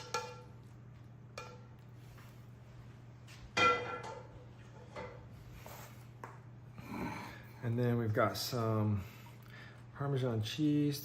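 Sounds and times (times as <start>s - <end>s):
utensil clinking against bowl: 0.0s - 0.7s, 1.3s - 1.7s.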